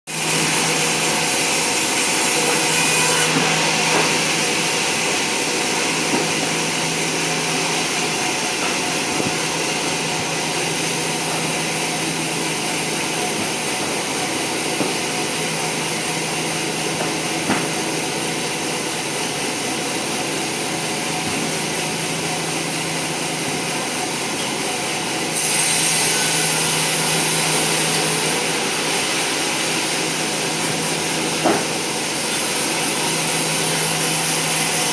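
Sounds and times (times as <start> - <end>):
power saw cutting log: 0.1 - 34.9.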